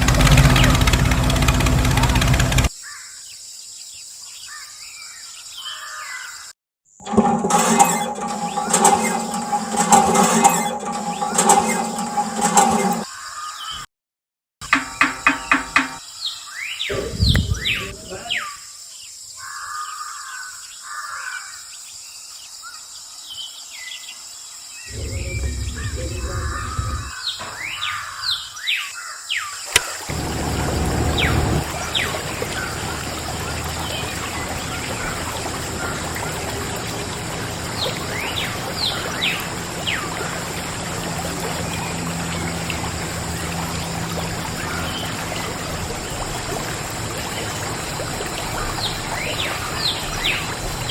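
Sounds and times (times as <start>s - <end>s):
water rushing from pump: 0.0s - 2.7s, 7.0s - 13.1s, 14.7s - 16.0s, 24.9s - 27.7s, 29.7s - 50.9s
birds chirping: 14.7s - 18.6s, 24.9s - 28.4s, 29.7s - 50.9s.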